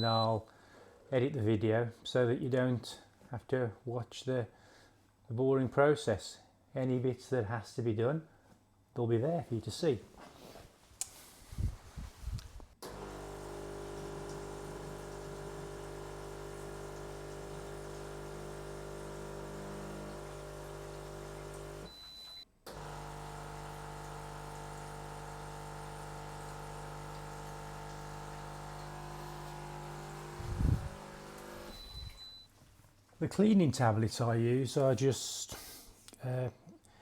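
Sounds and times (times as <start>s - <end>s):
espresso machine pump humming: 12.8s - 21.9s, 22.7s - 32.2s.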